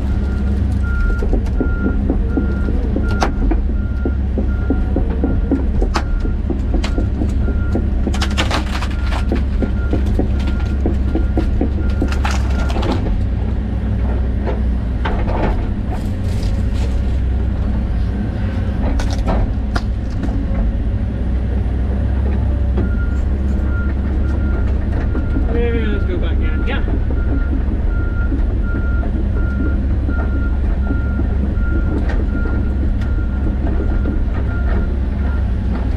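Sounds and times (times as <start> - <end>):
excavator diesel engine running: 0.0 - 35.9
trees cracking and crashing: 6.8 - 13.3, 15.6 - 20.5.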